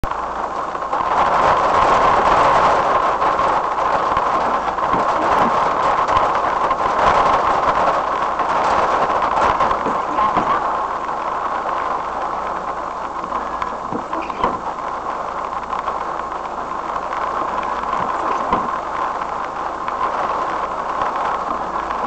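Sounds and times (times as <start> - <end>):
rain on car windscreen: 0.0 - 22.0.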